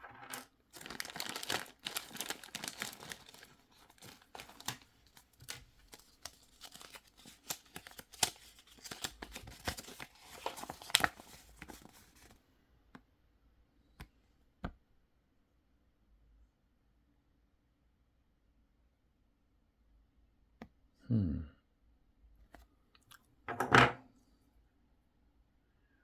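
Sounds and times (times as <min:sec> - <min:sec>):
plastic packaging crinkling: 0:00.0 - 0:12.3.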